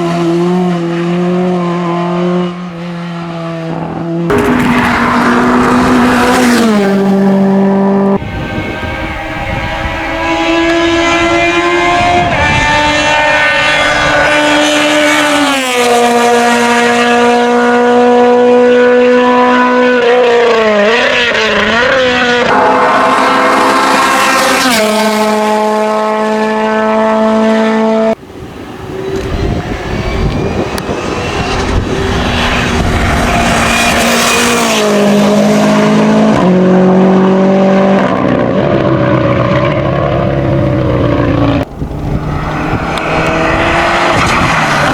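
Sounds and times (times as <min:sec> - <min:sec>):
race car engine at high revs: 0:00.0 - 0:44.9.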